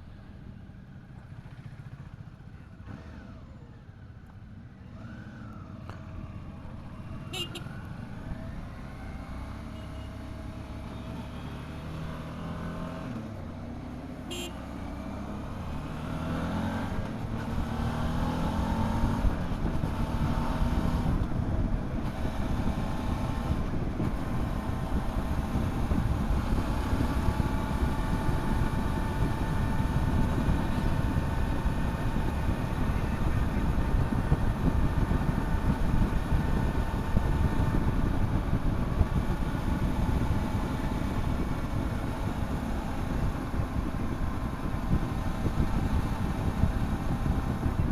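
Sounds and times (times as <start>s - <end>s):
motorcycle engine accelerating: 4.9s - 47.9s
wind rush on microphone: 19.0s - 47.9s.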